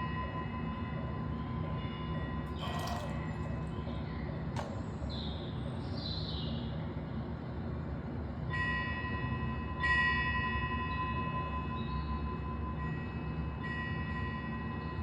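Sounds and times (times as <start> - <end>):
small metal bell ringing: 2.5 - 3.6.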